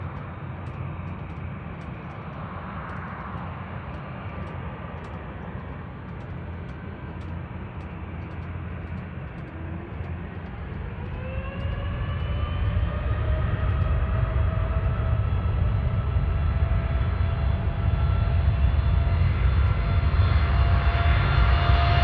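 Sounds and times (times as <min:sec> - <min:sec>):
airplane rumble with hiss: 0:00.0 - 0:22.0
rising engine whine: 0:00.0 - 0:22.0.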